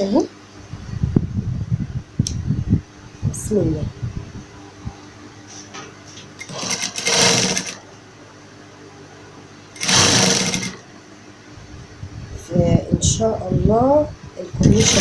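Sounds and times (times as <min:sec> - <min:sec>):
sewing machine stitching: 0:06.4 - 0:07.8, 0:09.8 - 0:10.8, 0:14.7 - 0:15.0.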